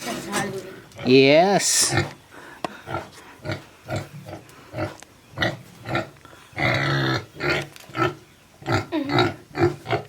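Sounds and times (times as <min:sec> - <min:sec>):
pigs grunting: 0:02.8 - 0:10.0.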